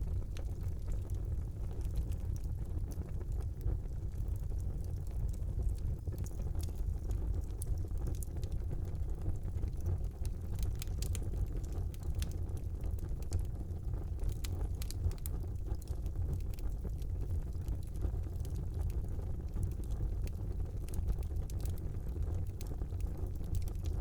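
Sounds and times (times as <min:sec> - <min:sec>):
fire crackles and pops: 0:00.0 - 0:24.0
wood fire rumbling: 0:00.0 - 0:24.0.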